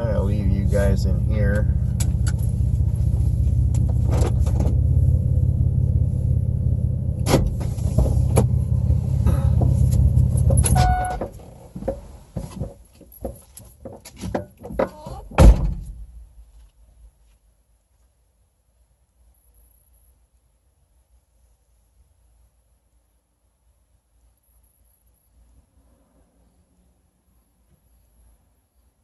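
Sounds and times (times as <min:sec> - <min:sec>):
car engine idling: 0:00.0 - 0:12.3
car door slamming: 0:07.2 - 0:08.6, 0:14.7 - 0:16.0
short electronic beep: 0:10.7 - 0:11.2.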